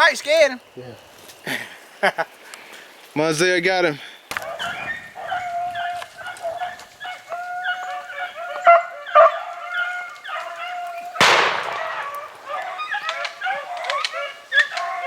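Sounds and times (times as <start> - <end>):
dogs baying: 4.3 - 15.0
gunshot echoing: 11.2 - 12.8.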